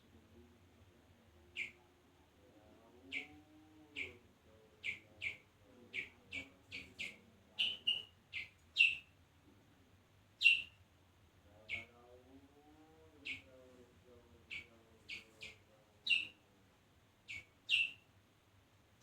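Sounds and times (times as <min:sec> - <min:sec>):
bird chirping: 0:01.4 - 0:01.9, 0:02.9 - 0:09.2, 0:10.4 - 0:10.8, 0:11.6 - 0:12.0, 0:13.2 - 0:13.6, 0:14.4 - 0:16.4, 0:17.2 - 0:18.1.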